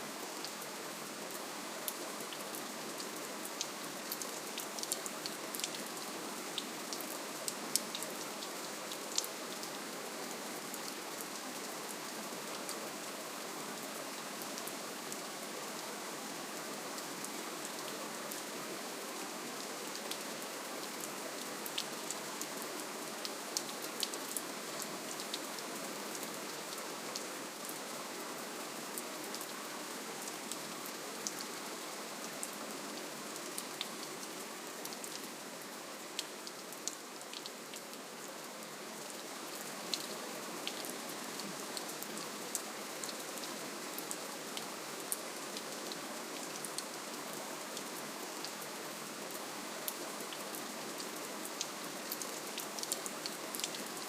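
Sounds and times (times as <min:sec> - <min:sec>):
steady gentle rain: 0:00.0 - 0:54.0
raindrops ticking on a surface: 0:01.8 - 0:09.8.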